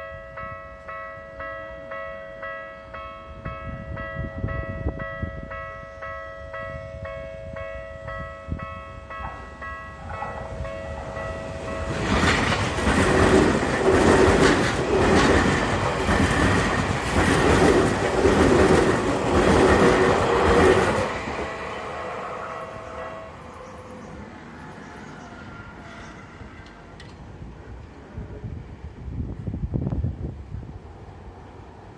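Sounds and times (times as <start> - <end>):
electronic crossing warning bell: 0.0 - 12.3
train passing: 0.0 - 31.9.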